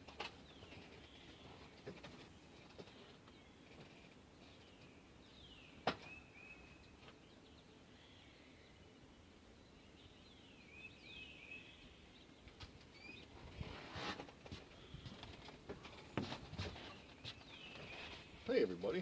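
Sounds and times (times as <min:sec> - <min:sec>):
faint birds chirping: 0:00.0 - 0:19.0.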